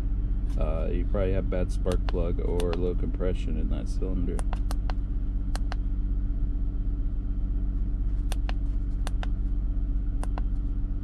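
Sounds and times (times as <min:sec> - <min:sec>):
car engine idling: 0:00.0 - 0:11.0
scanner button clicks: 0:04.4 - 0:05.8, 0:08.3 - 0:09.3, 0:10.2 - 0:10.5.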